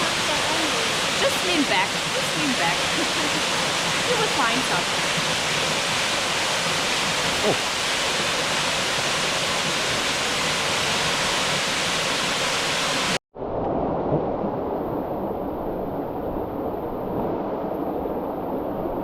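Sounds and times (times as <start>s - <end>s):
waterfall rushing: 0.0s - 13.2s.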